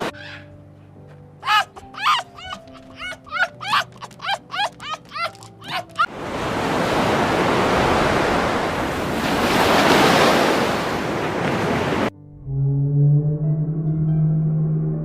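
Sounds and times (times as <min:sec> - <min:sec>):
quick rising yips: 0:01.4 - 0:06.1.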